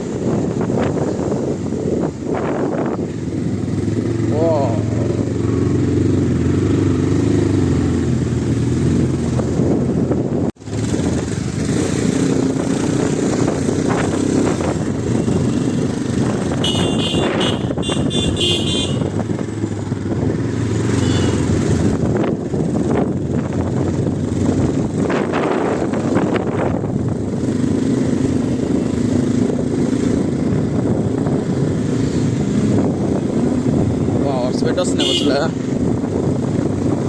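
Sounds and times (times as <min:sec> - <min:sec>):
road noise: 0:00.0 - 0:37.0
car horn honking: 0:16.5 - 0:19.2, 0:21.0 - 0:21.5, 0:34.8 - 0:35.5.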